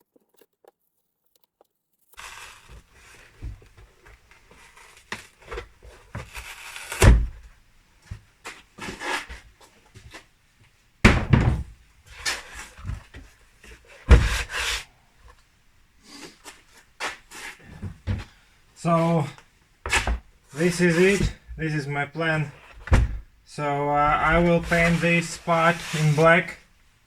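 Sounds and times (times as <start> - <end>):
scraping and rustling: 2.2 - 26.7
heavy thumps: 2.7 - 10.2, 11.0 - 15.4, 17.0 - 26.6.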